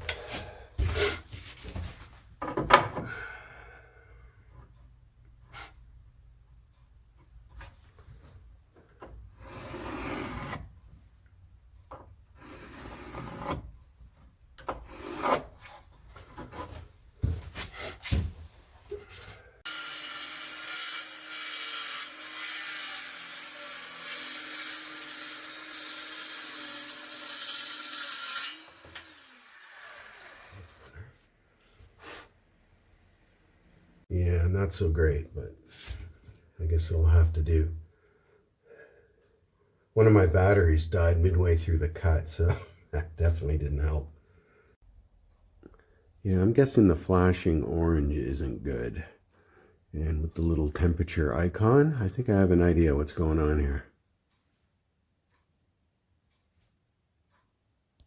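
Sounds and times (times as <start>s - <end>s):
knocks and clatter of wood and tools: 0.1s - 3.2s
circular saw cutting wood: 19.6s - 31.1s.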